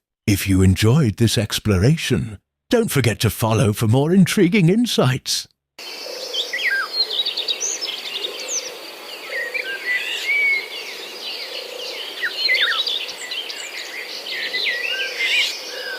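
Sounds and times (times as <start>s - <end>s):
songbirds chirping and singing: 5.8s - 15.9s.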